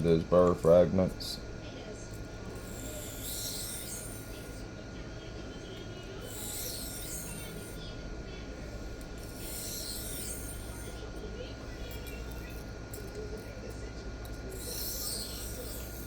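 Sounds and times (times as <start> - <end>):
knife scraping on sharpening plate: 2.5 - 4.5, 6.2 - 7.8, 9.2 - 10.9, 14.5 - 16.0.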